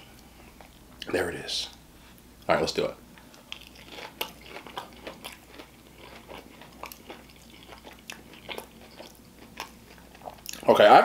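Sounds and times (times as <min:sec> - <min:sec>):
person chewing crunchy food: 0:03.2 - 0:10.7.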